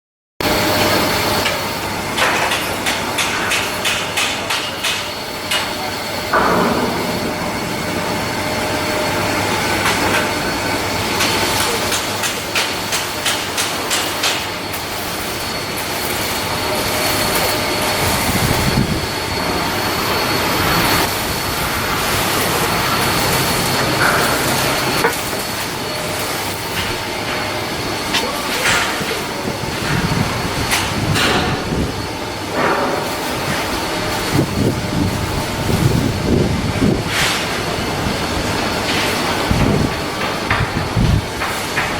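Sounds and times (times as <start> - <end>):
steady machinery noise: 0.4 - 41.9
sharp metal knocks: 2.2 - 5.7, 6.3 - 9.1.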